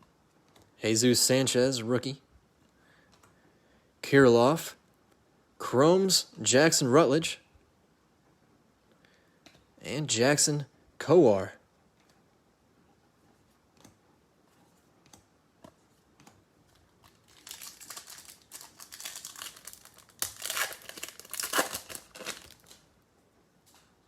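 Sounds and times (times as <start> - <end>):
wrapper tearing and crinkling: 17.0 - 22.9.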